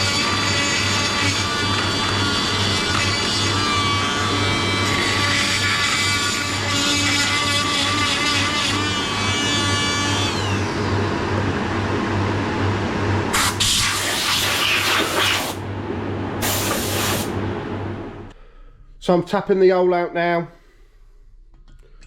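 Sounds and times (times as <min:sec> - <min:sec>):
hissing bursts: 0:13.3 - 0:15.6, 0:16.4 - 0:17.3.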